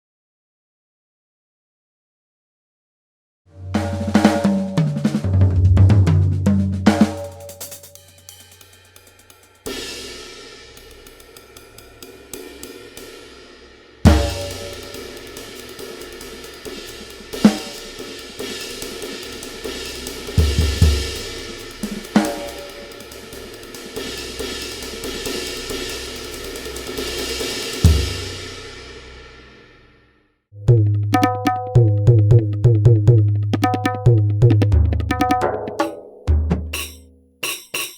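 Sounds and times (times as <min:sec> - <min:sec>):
electronic drum hits on toms: 0:14.1 - 0:14.9, 0:30.7 - 0:37.9
bass drum hits: 0:30.6 - 0:35.2.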